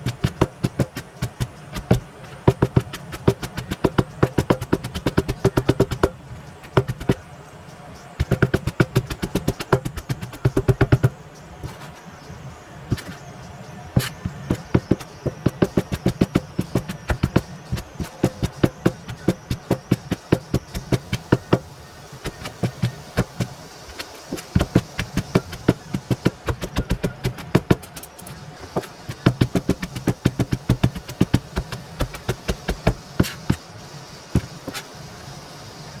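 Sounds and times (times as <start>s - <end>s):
knife chopping vegetables on a board: 0.0s - 7.2s, 8.2s - 11.9s, 12.9s - 13.2s, 14.0s - 33.6s, 34.4s - 34.9s.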